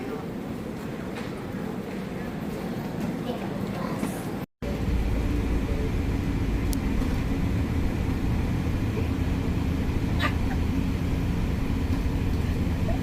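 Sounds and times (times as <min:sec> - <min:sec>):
vehicle rumble in motion: 0:04.6 - 0:13.0.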